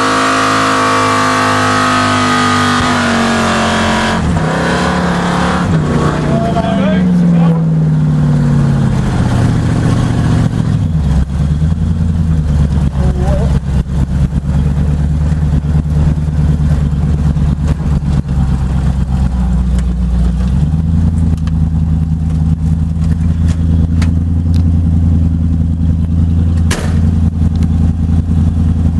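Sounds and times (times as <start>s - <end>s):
car engine idling: 0.0s - 28.9s
sharp knock: 26.6s - 27.1s.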